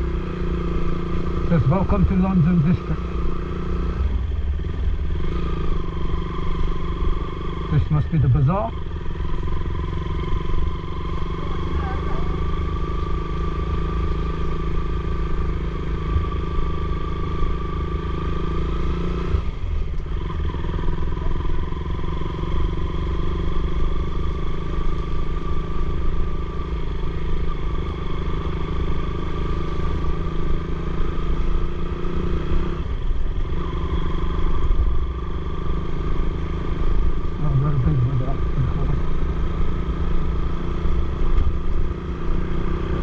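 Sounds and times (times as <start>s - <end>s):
motorcycle engine running: 0.0s - 43.0s
heavy low rumble: 37.1s - 39.3s.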